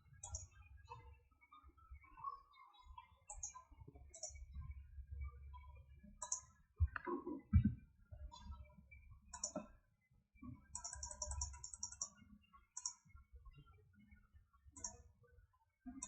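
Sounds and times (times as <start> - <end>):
computer mouse clicks: 0.2 - 0.5, 3.3 - 4.4, 6.2 - 7.4, 9.3 - 9.7, 10.7 - 12.2, 12.8 - 13.1, 14.8 - 15.0.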